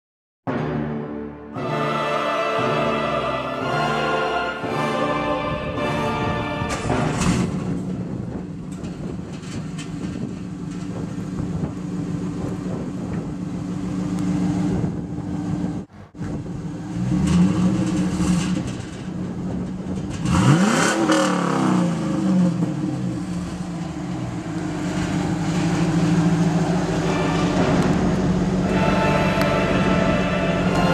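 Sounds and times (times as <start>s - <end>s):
car engine revving: 20.0s - 30.9s.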